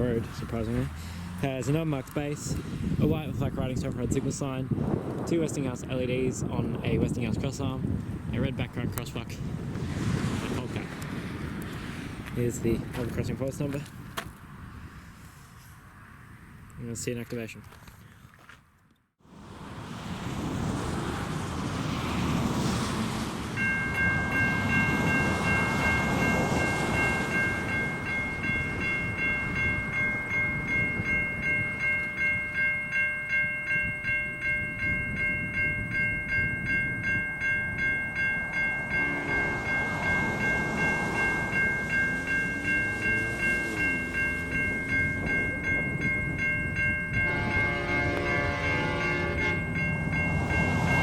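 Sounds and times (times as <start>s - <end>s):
level crossing bells ringing: 23.6s - 51.0s.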